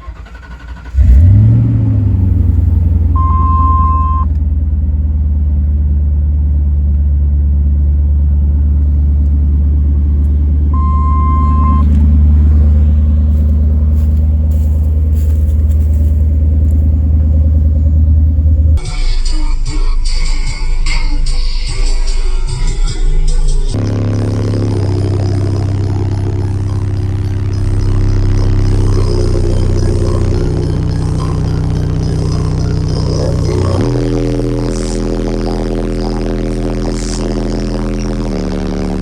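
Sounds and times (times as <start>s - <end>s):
subwoofer low bass tone: 1.0s - 39.0s
short high beeps: 3.2s - 4.3s, 10.8s - 11.9s.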